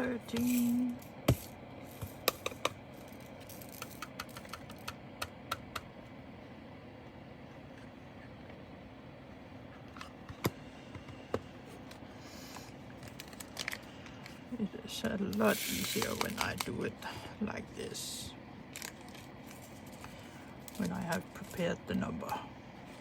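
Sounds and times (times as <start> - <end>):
plastic bags and containers clicking: 13.0 - 14.2, 15.3 - 16.8.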